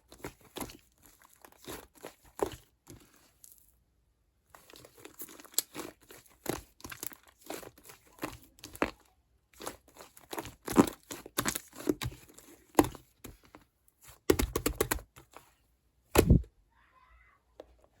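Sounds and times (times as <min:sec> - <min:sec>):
slime squished by hand: 0:00.1 - 0:03.6, 0:04.6 - 0:13.4.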